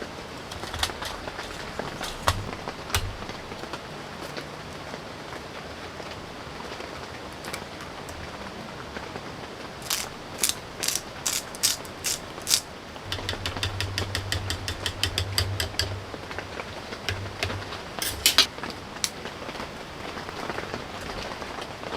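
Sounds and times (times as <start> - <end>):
low hum: 0.0 - 3.7, 13.0 - 19.0
steady rain: 0.0 - 21.9
ratchet-like ticks: 9.8 - 16.2
mechanical clicking: 9.8 - 18.5.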